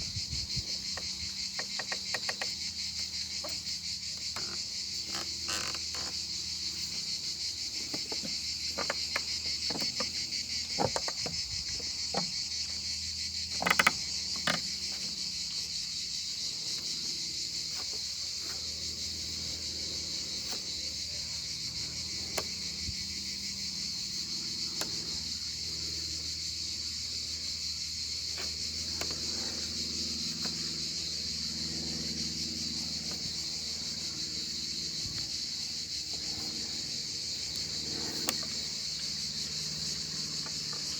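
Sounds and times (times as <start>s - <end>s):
crickets trilling: 0.0s - 40.9s
sharp clicks and knocks: 7.8s - 12.4s.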